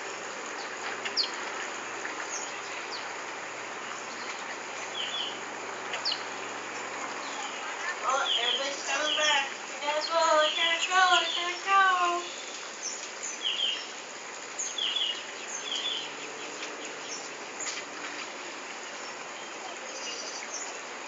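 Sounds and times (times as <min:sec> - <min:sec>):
small birds chirping: 0:03.8 - 0:06.4, 0:07.2 - 0:20.8
person speaking: 0:07.8 - 0:12.3.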